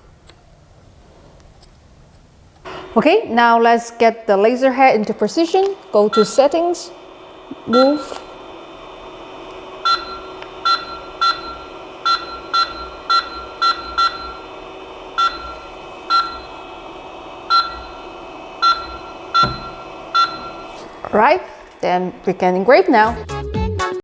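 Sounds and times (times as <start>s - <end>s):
steady machine hum: 2.3s - 23.3s
control panel beeps: 6.0s - 6.6s, 7.6s - 8.3s, 9.8s - 16.7s, 17.4s - 21.3s.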